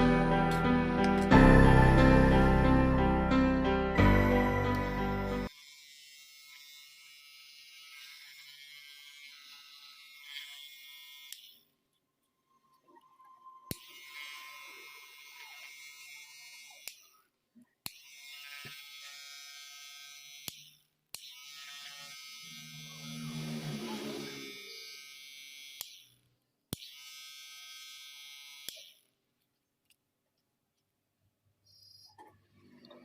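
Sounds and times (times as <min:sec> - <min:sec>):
electric hair trimmer buzzing: 0:04.2 - 0:11.6, 0:13.7 - 0:17.1, 0:17.9 - 0:29.1.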